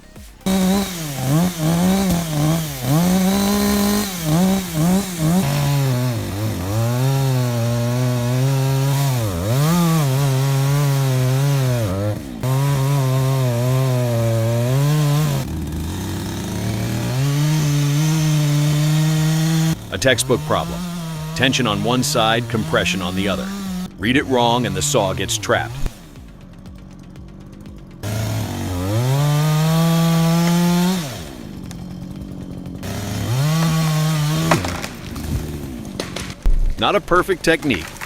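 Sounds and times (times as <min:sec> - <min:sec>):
chainsaw revving and cutting: 0:00.0 - 0:38.0.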